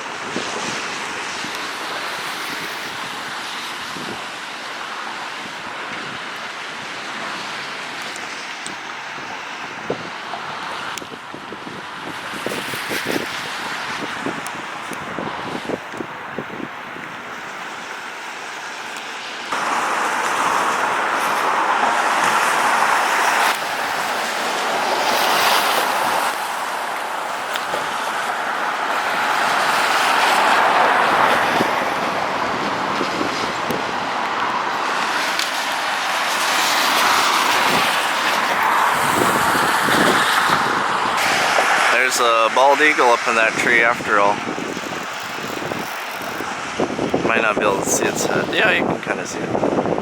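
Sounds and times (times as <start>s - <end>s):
tyres hissing on wet road: 0.0s - 50.0s.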